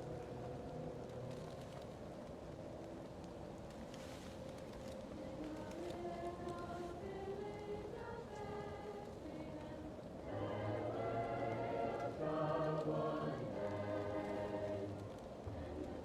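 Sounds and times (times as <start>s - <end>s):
fireplace crackling: 0.0s - 16.0s
choir singing held chords: 5.4s - 16.0s.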